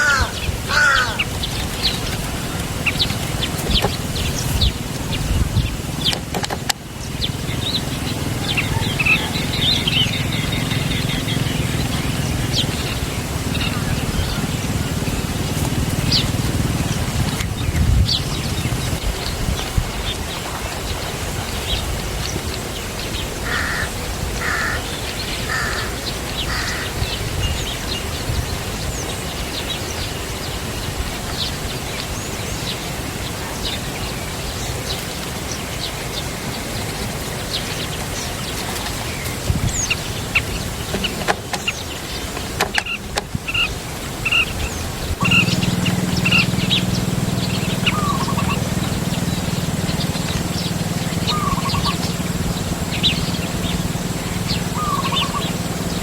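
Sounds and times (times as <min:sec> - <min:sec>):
birds chirping and calling: 0:00.0 - 0:56.0.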